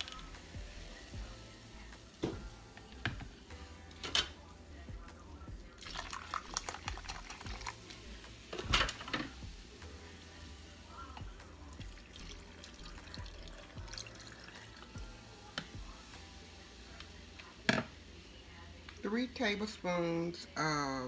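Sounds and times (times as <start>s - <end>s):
soda pouring and fizzing: 5.7s - 9.8s, 11.3s - 16.0s
liquid poured into glass jar: 5.8s - 7.9s, 11.8s - 15.0s.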